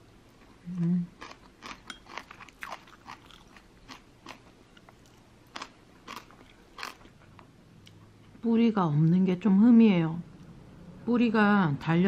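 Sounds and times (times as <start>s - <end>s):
person chewing crunchy food: 0.4s - 7.3s.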